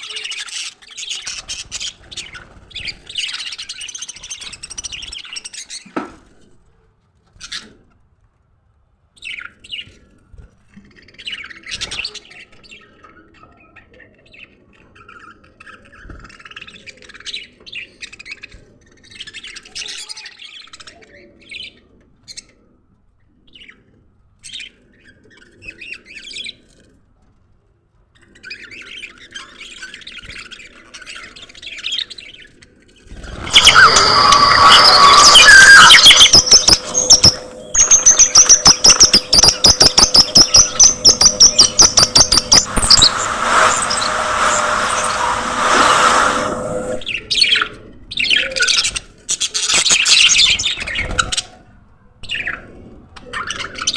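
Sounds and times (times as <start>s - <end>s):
budgerigars chirping and chattering: 33.2s - 45.2s.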